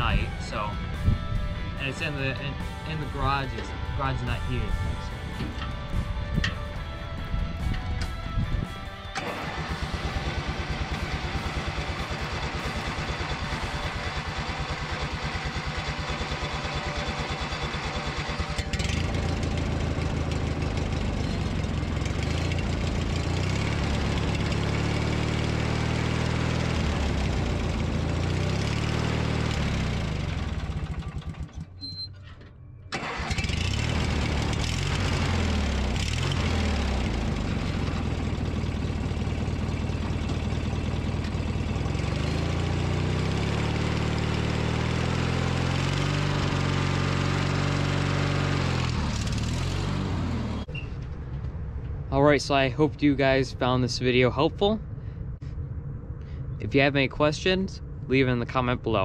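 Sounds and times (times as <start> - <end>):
mower engine running: 0.0 - 52.0
electric starter cranking engine: 7.6 - 32.1, 32.9 - 50.0.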